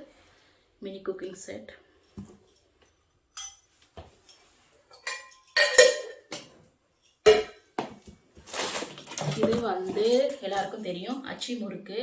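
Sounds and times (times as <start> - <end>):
small pots and utensils clinking: 2.0 - 7.8, 8.5 - 11.4.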